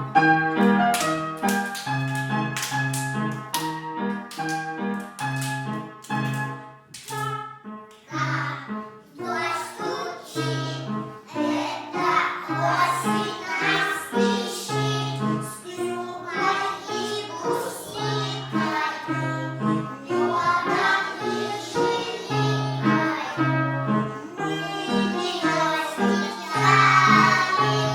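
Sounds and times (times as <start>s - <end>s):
piano accompaniment: 0.0s - 27.9s
children singing: 8.1s - 27.9s.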